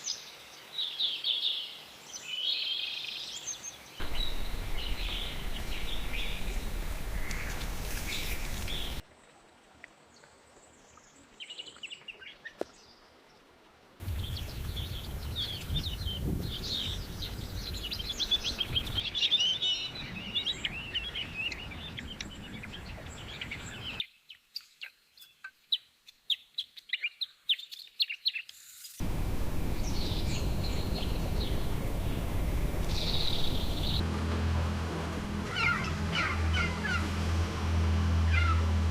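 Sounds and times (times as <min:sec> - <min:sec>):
small birds chirping: 0:00.0 - 0:09.0, 0:14.0 - 0:34.0
steady background noise: 0:29.0 - 0:38.9.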